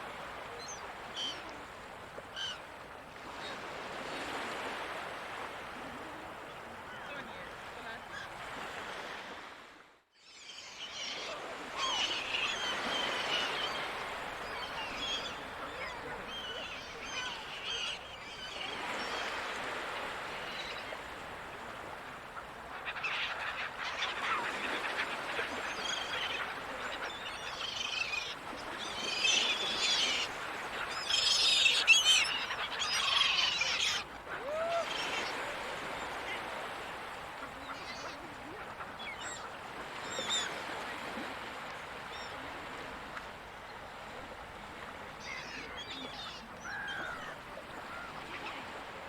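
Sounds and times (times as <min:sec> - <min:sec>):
gulls calling: 0:10.4 - 0:21.2, 0:22.7 - 0:40.8, 0:45.2 - 0:48.8.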